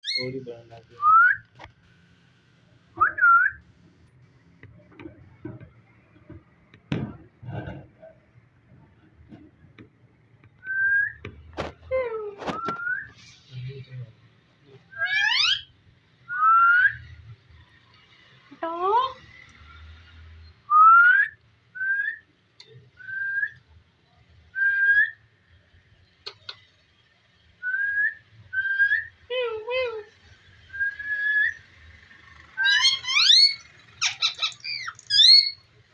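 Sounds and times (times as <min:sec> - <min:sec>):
parrot whistling: 0:27.6 - 0:29.1, 0:30.7 - 0:31.6, 0:32.6 - 0:35.6
rising whistles: 0:30.7 - 0:31.6.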